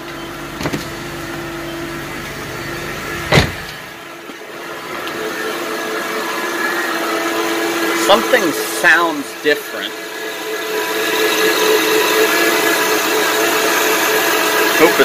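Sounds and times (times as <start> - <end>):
car engine idling: 0.0 - 15.0
car door shutting: 0.1 - 5.2.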